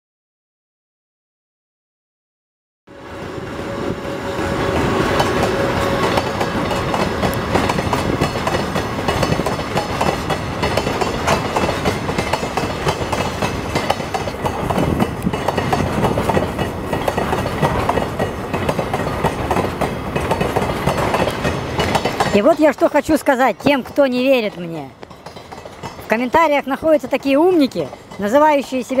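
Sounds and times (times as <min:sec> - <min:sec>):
train wheels clacking on rails: 0:04.0 - 0:29.0.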